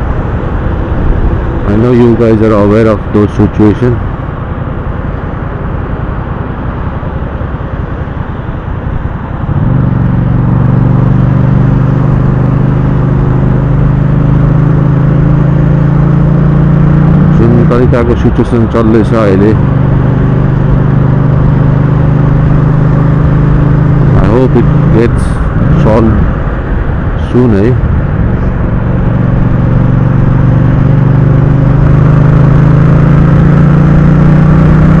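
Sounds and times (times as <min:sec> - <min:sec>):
motorcycle riding: 0:00.0 - 0:35.0
road and wind noise: 0:00.0 - 0:35.0
steady engine hum: 0:00.0 - 0:35.0.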